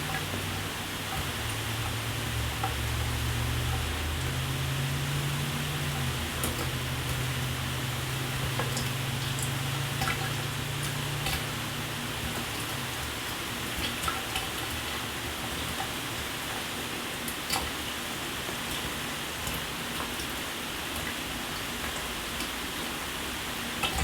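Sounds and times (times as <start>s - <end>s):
shower water spraying: 0.0s - 14.1s
water drips and splats: 0.0s - 24.0s.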